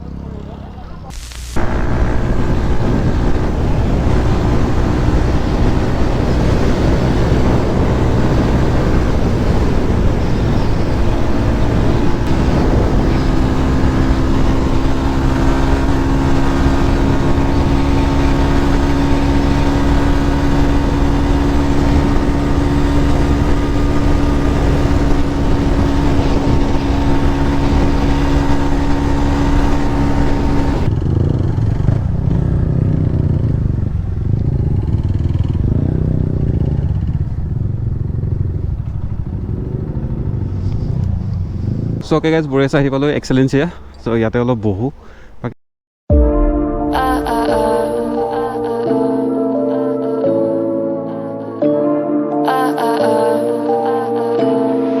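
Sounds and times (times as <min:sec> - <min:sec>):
motorcycle engine running: 0:00.0 - 0:42.0
road and wind noise: 0:00.0 - 0:45.6.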